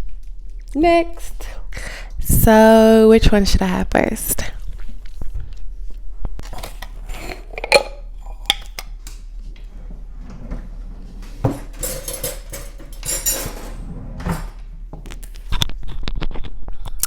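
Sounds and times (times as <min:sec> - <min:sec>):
food containers clinking on table: 0:06.5 - 0:09.0, 0:11.1 - 0:15.2.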